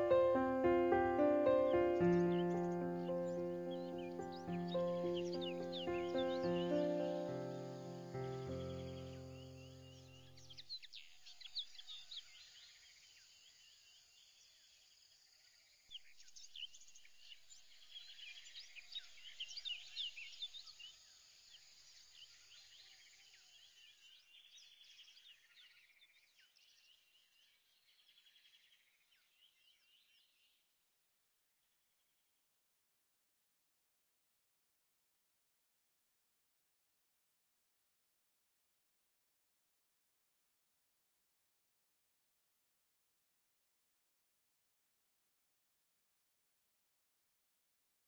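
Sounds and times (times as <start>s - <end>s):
small birds chirping: 0.0s - 30.6s.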